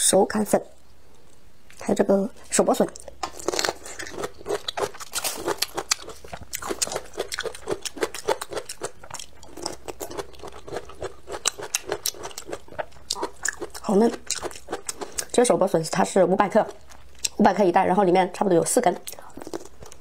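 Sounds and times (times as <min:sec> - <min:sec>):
person chewing crunchy food: 0:02.4 - 0:15.4, 0:16.7 - 0:17.4, 0:19.0 - 0:20.0.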